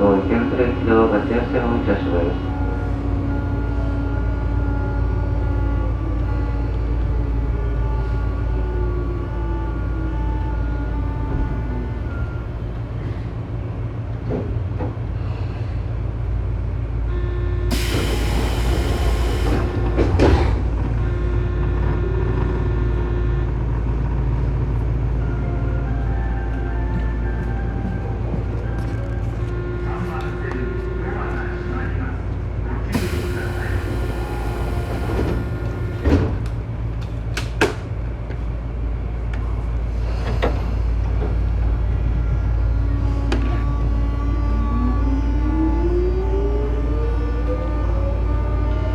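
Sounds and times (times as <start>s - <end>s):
train equipment humming: 0.0s - 48.9s
compressed air hiss: 17.7s - 20.0s, 32.9s - 36.1s
train doors closing with thuds: 17.7s - 22.1s, 32.9s - 38.4s.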